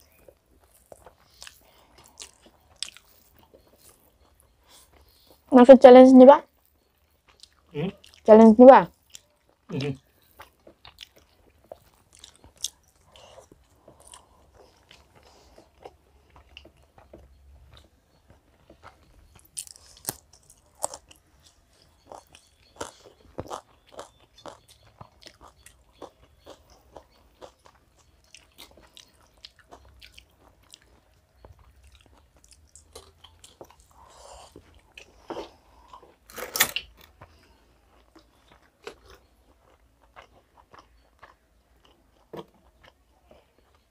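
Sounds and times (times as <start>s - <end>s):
people chewing food: 0.0s - 5.5s, 6.4s - 43.9s
clicks and crunches of eating: 9.0s - 21.2s, 34.5s - 43.9s.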